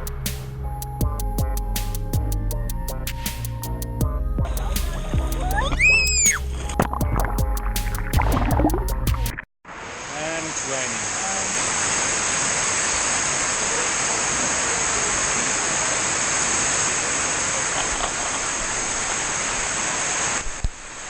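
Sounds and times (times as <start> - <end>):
heavy rain pouring: 9.7 - 21.0.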